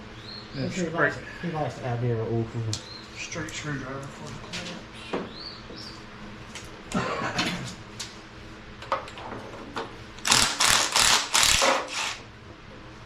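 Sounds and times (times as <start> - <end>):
ratchet strokes: 10.2 - 12.2.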